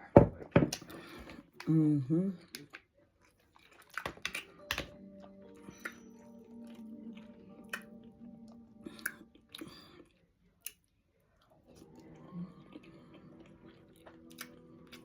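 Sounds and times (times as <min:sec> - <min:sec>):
person chewing food: 0:00.7 - 0:01.8, 0:02.4 - 0:15.0
sharp mouth clicks: 0:08.9 - 0:09.7.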